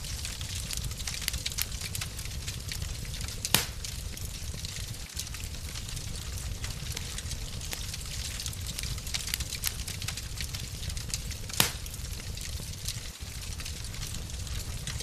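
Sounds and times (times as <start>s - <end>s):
wood fire crackling: 0.0s - 15.0s
loud pop of fire: 2.8s - 4.2s, 11.4s - 12.4s.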